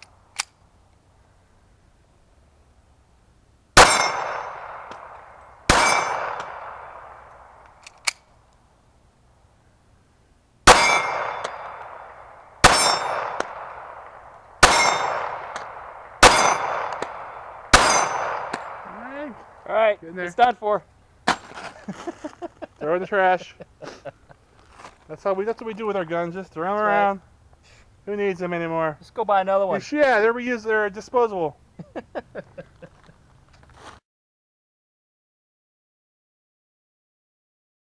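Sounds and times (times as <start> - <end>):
steel targets ringing: 3.8 - 7.2, 10.7 - 19.7
pistol shots: 3.8 - 8.2, 10.7 - 19.7.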